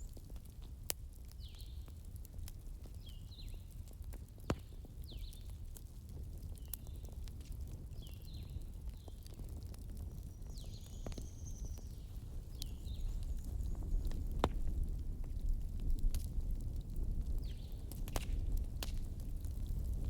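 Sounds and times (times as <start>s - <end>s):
fire crackling and popping: 0.0s - 20.0s.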